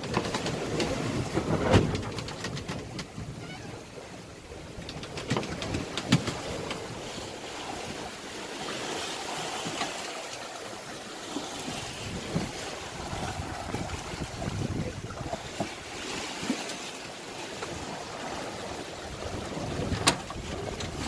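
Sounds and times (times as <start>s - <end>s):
wind on microphone: 0.0s - 8.2s, 11.5s - 16.6s, 17.6s - 21.0s
water splashing against boat: 0.0s - 21.0s.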